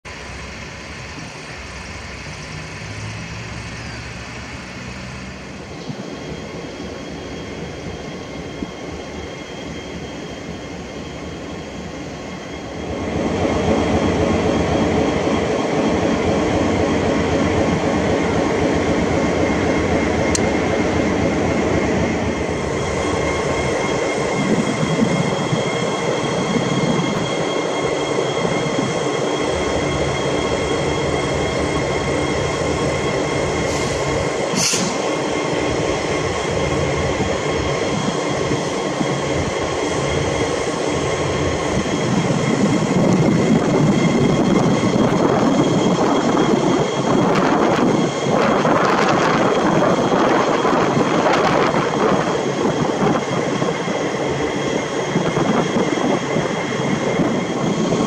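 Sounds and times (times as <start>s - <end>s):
train rolling rumble: 0.0s - 58.0s
diesel engine hum: 0.1s - 6.1s.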